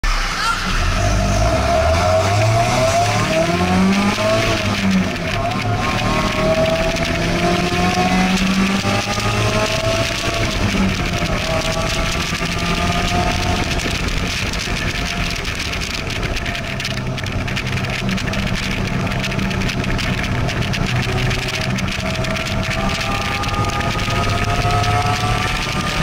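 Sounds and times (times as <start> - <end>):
sports car engine: 0.0 - 26.0
wind and road noise: 0.0 - 26.0.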